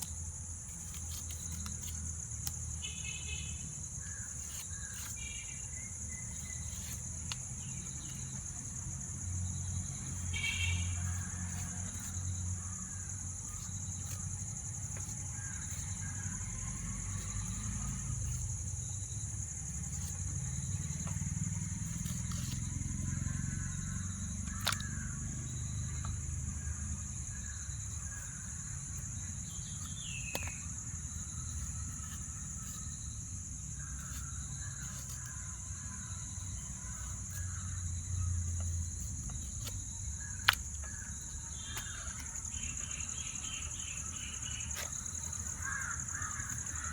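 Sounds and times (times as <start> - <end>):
birds chirping: 20.0 - 46.9.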